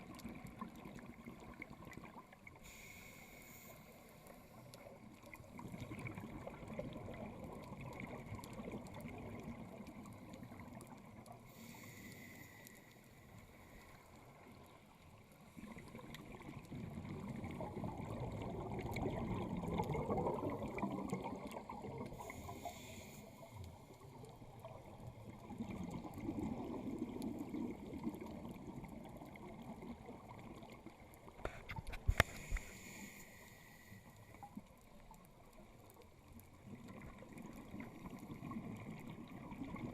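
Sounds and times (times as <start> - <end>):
hissing regulator inhale: 2.6 - 4.6, 11.5 - 14.2, 22.1 - 23.6, 32.1 - 34.5
rumbling exhaled bubbles: 5.4 - 10.8, 15.6 - 22.3, 24.8 - 30.8, 36.6 - 39.9.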